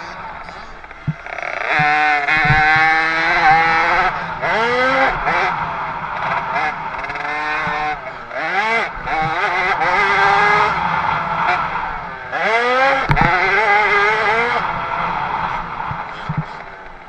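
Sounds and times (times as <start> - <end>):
motocross bike engine revving: 0.0 - 17.0
sharp knock: 13.1 - 13.4.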